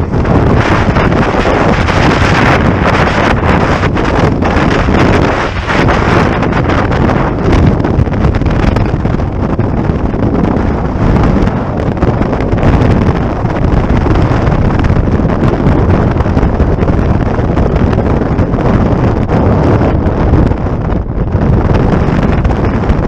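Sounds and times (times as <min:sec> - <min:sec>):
motorcycle and road noise: 0:00.0 - 0:23.0
wind buffeting microphone: 0:00.0 - 0:23.0.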